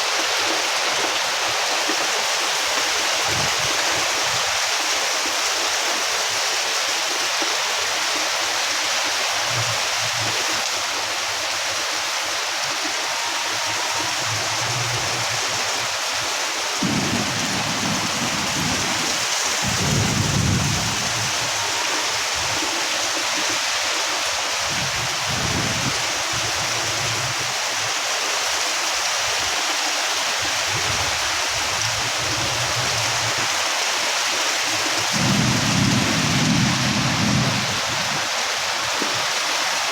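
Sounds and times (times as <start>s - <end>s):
heavy rain pouring: 0.0s - 39.9s
deep thunder rumbles: 16.8s - 21.6s, 35.1s - 38.4s.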